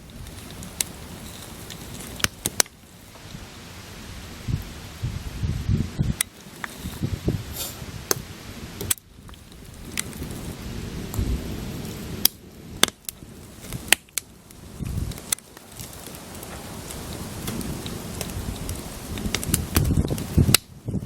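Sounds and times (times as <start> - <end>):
wood popping: 0.0 - 3.6, 6.0 - 20.8
steady low rumble: 0.0 - 6.2
campfire crackling: 0.0 - 21.0.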